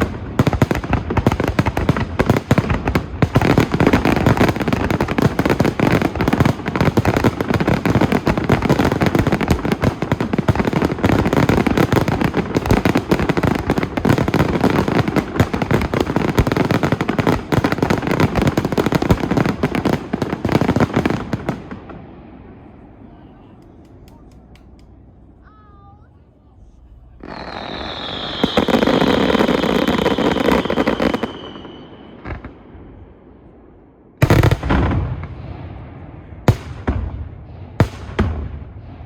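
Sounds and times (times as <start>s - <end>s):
fireworks bangs and crackling: 0.0s - 25.4s, 26.9s - 39.0s.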